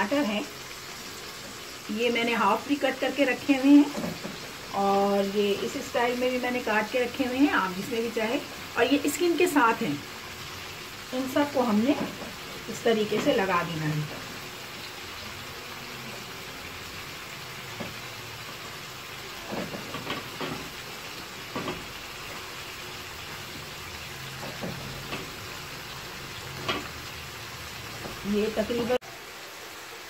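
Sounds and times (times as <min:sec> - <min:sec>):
chicken sizzling in oil: 0:00.0 - 0:30.0.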